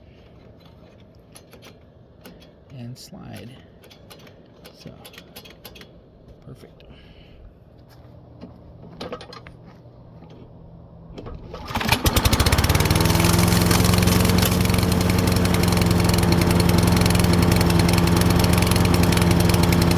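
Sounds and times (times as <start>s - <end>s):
lawn mower engine starting and running: 10.4s - 19.9s.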